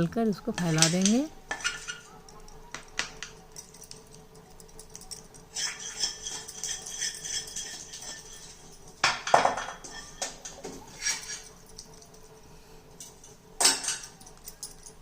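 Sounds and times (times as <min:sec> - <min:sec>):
utensil scraping a plate: 0:01.5 - 0:02.2, 0:05.5 - 0:11.6.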